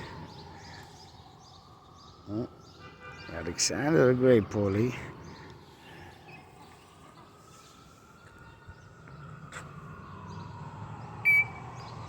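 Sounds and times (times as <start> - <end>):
parrot whistle-like call: 11.3 - 11.6.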